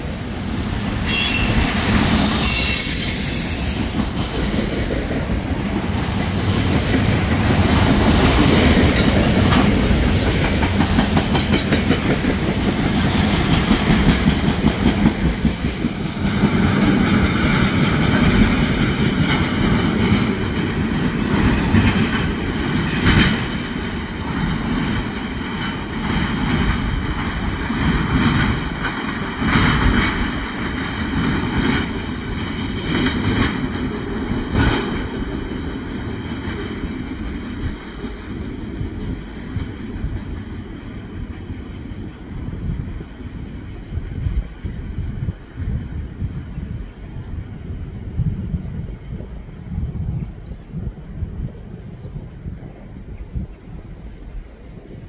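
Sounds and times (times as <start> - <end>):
freight train wheels on rails: 0.0 - 55.0
sharp knocks of train cars: 6.4 - 17.4.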